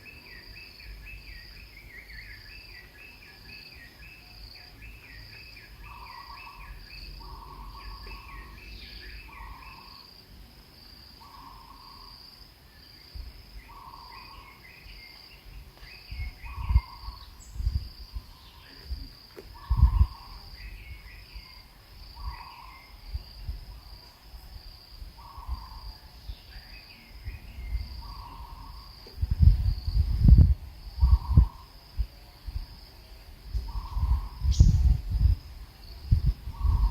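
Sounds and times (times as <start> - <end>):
bird chirps: 0.0 - 10.0, 12.8 - 23.3, 25.2 - 29.5
pulsing insect chorus: 0.0 - 36.9.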